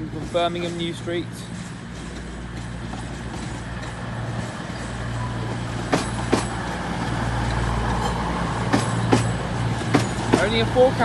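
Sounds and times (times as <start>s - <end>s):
diesel train engines droning: 0.0s - 11.0s
wheels clacking over track joints: 0.0s - 11.0s.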